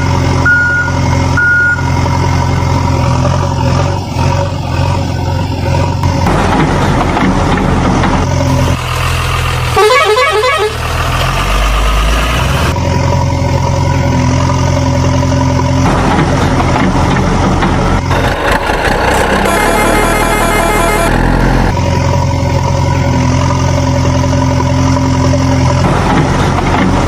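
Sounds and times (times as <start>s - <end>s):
heavy vehicle engine humming: 0.0s - 27.0s
horn honking: 9.7s - 10.8s, 19.2s - 21.7s.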